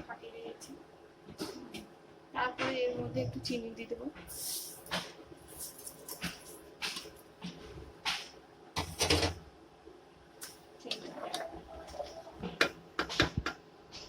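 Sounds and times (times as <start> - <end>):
containers and utensils rattling: 4.3 - 7.2.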